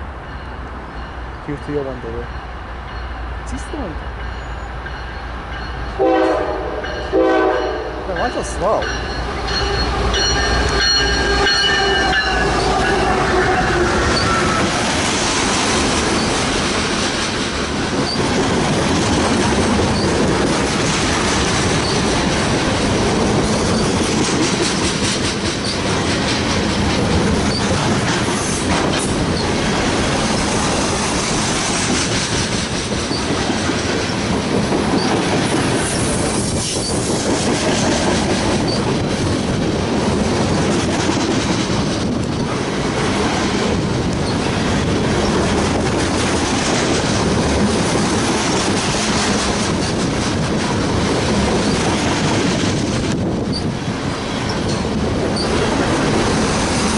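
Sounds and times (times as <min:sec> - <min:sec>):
train horn: 0:06.0 - 0:08.1, 0:09.3 - 0:14.7
freight cars rumbling: 0:08.0 - 0:56.9.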